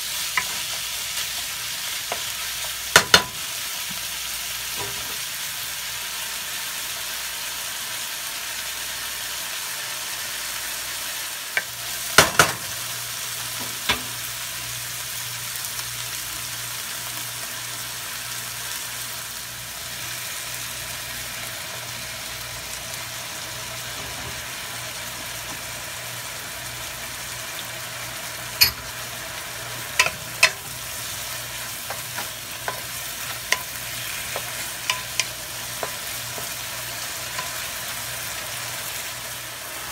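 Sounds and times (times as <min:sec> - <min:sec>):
food sizzling in oil: 0:00.0 - 0:39.9
wooden spatula knocking pan: 0:02.9 - 0:03.4, 0:30.0 - 0:30.7.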